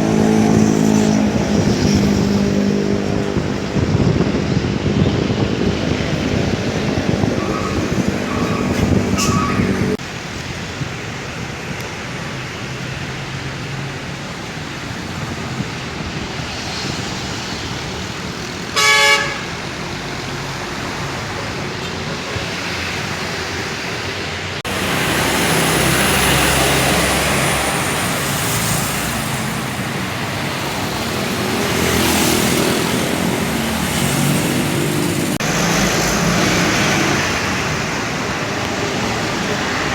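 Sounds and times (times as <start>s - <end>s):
loud horn blast: 0.0s - 4.2s, 18.7s - 19.6s
cars and motorcycles passing: 0.0s - 39.9s.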